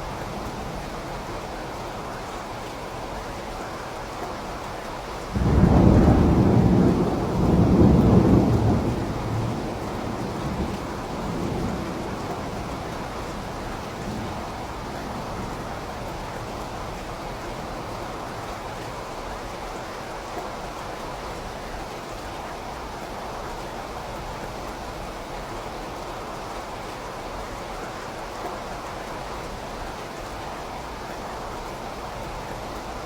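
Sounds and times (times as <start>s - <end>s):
steady rain: 0.0s - 33.0s
thunder clap and rumble: 5.3s - 18.5s.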